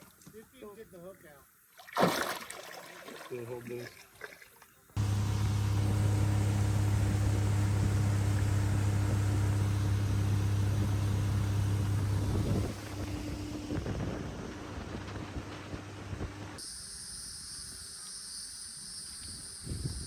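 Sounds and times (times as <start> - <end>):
boat motor running: 5.0 - 16.6.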